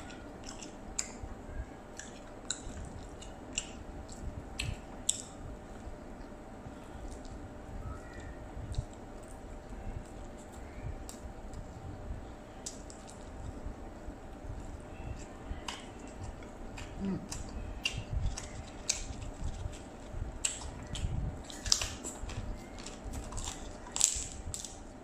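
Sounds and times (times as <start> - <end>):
wet chewing: 0.0 - 1.3, 1.9 - 5.4, 12.6 - 25.0
cracker crunching: 0.0 - 11.7, 12.4 - 25.0.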